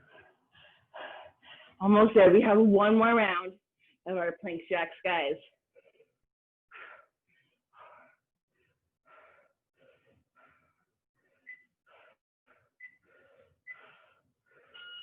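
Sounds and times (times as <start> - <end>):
person breathing heavily: 0.0 - 1.8, 5.7 - 14.9
thin whistle in breath: 11.4 - 11.8, 12.8 - 13.0, 13.6 - 14.0, 14.6 - 15.0.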